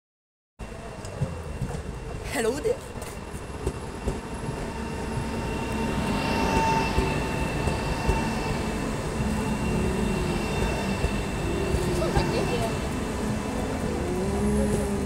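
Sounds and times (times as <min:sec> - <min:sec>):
steady high whine: 0:00.6 - 0:15.0
wheel-on-rail rumble: 0:00.6 - 0:15.0.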